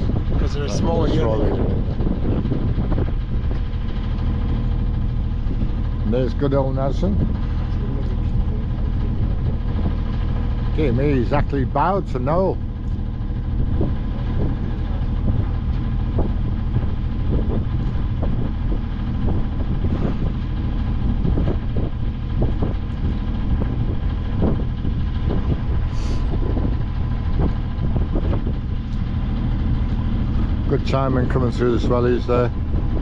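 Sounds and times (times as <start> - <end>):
boat engine running: 0.0 - 33.0.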